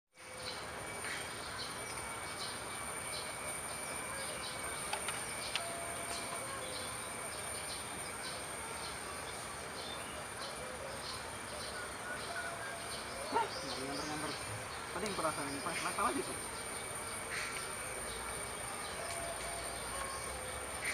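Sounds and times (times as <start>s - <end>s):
thin high-pitched whine: 0.2s - 20.9s
steady hiss: 0.5s - 20.9s
faint clicks: 4.9s - 5.7s.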